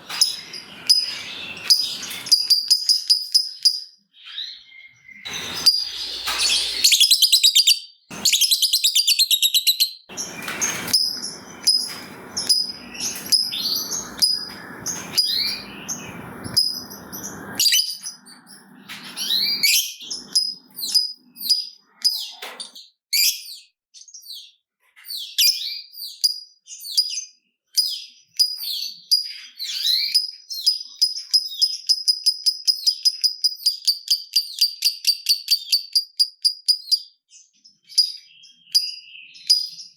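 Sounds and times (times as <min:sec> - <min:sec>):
harsh rattling bird chatter: 0:00.0 - 0:04.5, 0:05.2 - 0:22.8
lovebirds chirping: 0:00.0 - 0:24.5
ticking bird chirps: 0:00.1 - 0:04.5, 0:05.1 - 0:22.8, 0:27.8 - 0:37.2.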